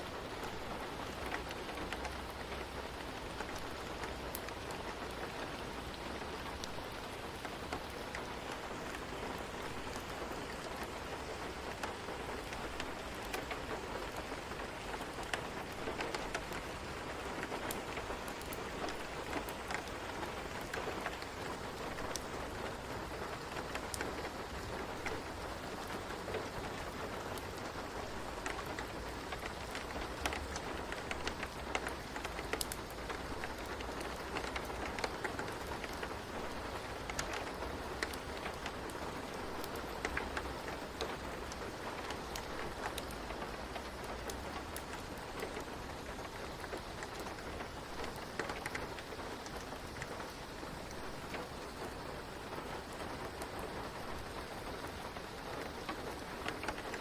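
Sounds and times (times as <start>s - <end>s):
rain falling: 0.0s - 57.0s
raindrops ticking on a surface: 0.0s - 57.0s.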